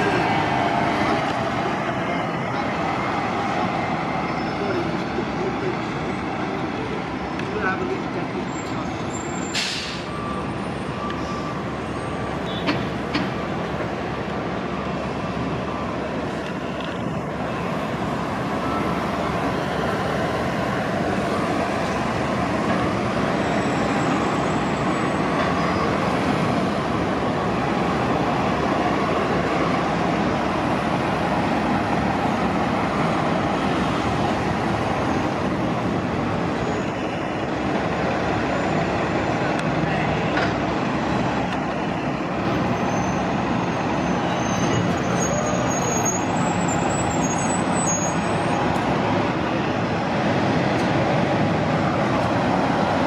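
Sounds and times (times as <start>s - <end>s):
bus engines and traffic din: 0.0s - 53.0s.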